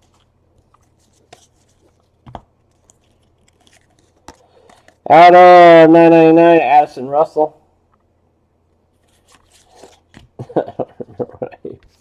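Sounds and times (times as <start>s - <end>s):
trading cards rustling: 0.0s - 5.1s, 9.0s - 10.4s.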